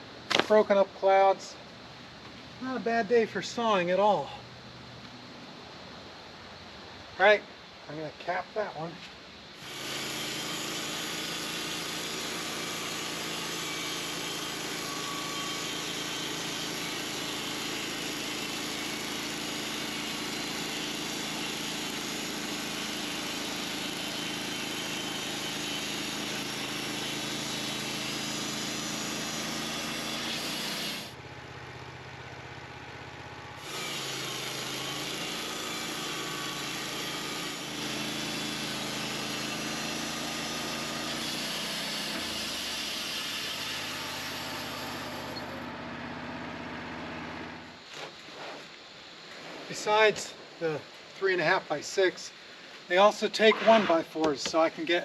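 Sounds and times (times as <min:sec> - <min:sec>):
saw blade cutting wood: 0:09.6 - 0:31.2, 0:33.6 - 0:45.8
sawmill engine running: 0:09.6 - 0:47.8.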